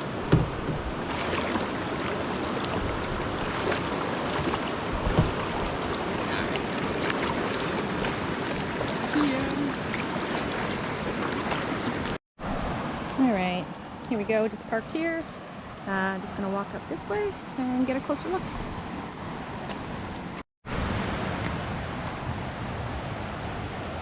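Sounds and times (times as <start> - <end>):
paddle knocking against kayak: 0.0 - 12.2.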